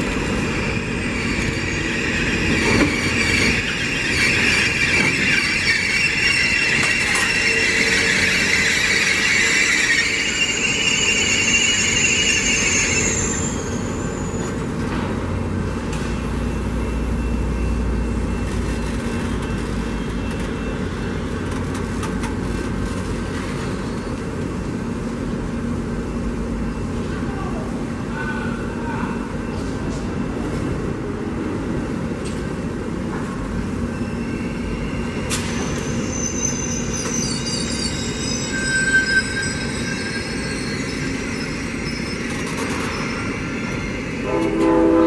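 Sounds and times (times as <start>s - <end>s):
train wheels squealing: 0.0s - 15.2s, 33.1s - 45.0s
train rumbling: 0.0s - 45.0s.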